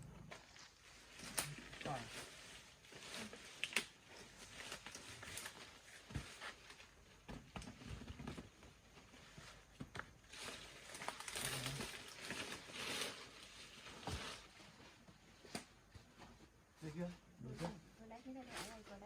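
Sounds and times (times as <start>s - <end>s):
leaves and stalks rustling: 0.3s - 7.2s, 9.0s - 15.7s, 17.5s - 19.0s.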